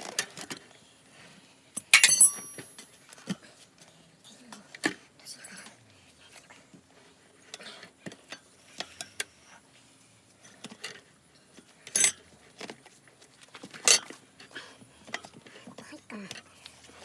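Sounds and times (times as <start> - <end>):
metallic clanks: 1.8 - 2.8.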